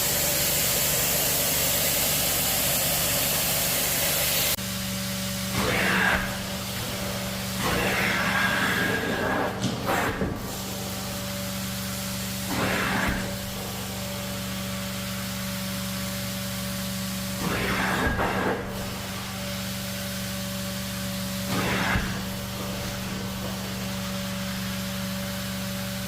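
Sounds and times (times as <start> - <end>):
cleaning machine humming: 0.0 - 26.0
spray and suction swish: 5.6 - 15.2, 21.5 - 24.8.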